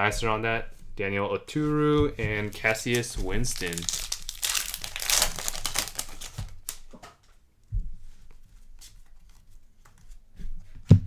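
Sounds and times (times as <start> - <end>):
cards rustling and crinkling: 2.2 - 7.3.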